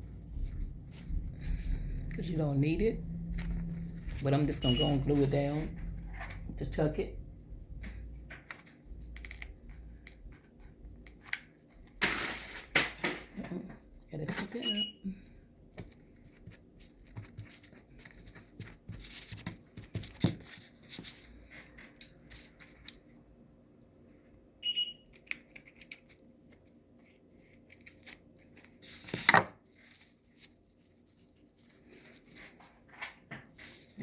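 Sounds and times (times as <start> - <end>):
fabric rustling and handling: 3.3 - 6.5
short high beep: 4.6 - 5.1.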